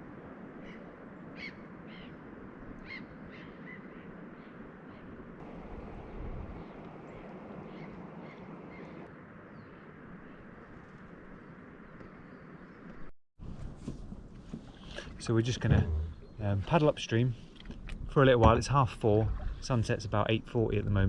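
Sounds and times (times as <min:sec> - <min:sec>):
bird calling: 0:00.6 - 0:02.2, 0:02.8 - 0:13.0.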